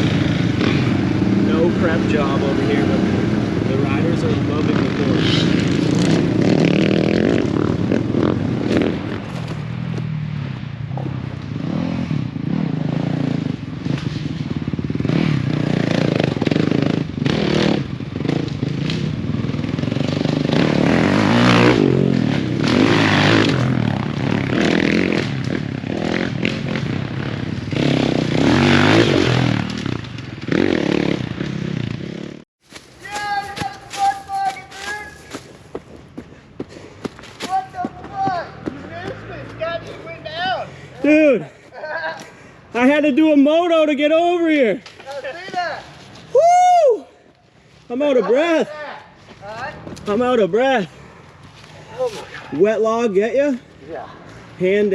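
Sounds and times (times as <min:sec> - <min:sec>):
dirt bike engines revving: 0:00.0 - 0:54.9.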